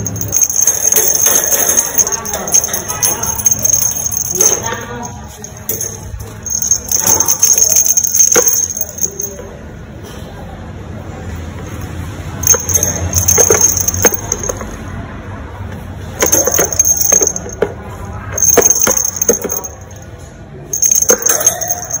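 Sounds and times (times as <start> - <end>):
metallic jingling and clinking: 0.0 - 9.6, 12.4 - 14.9, 16.2 - 22.0.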